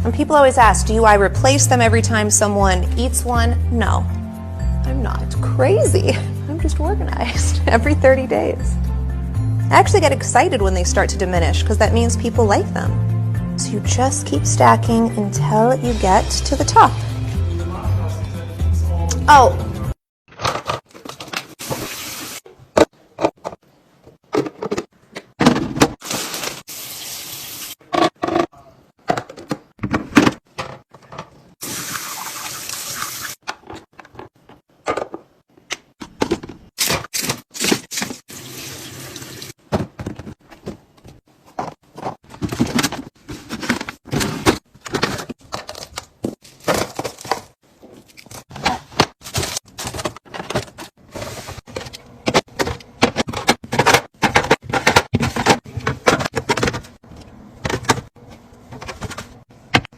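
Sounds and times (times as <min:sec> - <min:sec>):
items clicking and clinking: 0:20.3 - 0:21.8, 0:22.5 - 0:26.0, 0:27.9 - 0:31.6, 0:33.4 - 0:38.2, 0:39.6 - 0:59.9.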